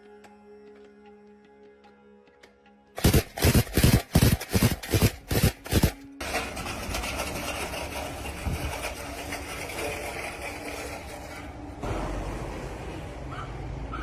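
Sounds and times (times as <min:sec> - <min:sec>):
truck engine starting: 0:03.0 - 0:14.0.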